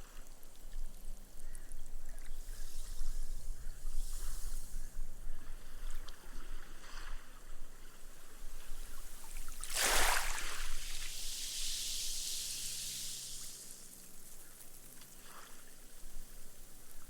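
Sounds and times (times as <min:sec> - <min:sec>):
wave lapping on sandy beach: 0:05.6 - 0:17.0
foam fizzing: 0:09.2 - 0:16.9.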